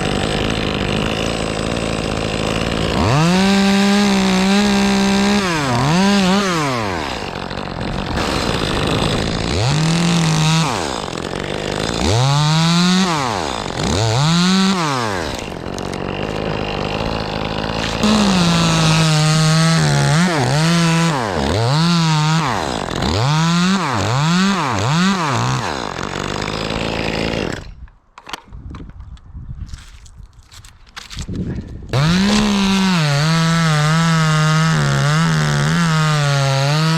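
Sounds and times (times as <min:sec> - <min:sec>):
chainsaw revving and cutting: 0:00.0 - 0:27.8, 0:31.9 - 0:36.9.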